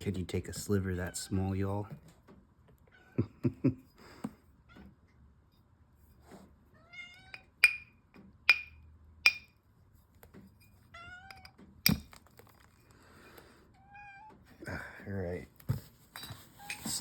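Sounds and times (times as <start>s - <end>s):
cat meowing: 6.8s - 7.4s, 13.8s - 14.4s.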